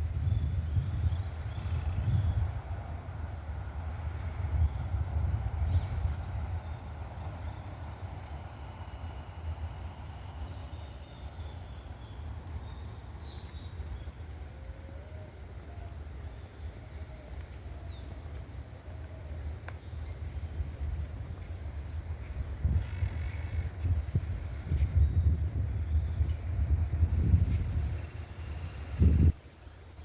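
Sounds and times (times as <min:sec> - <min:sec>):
wild birds chirping: 0:03.8 - 0:21.1.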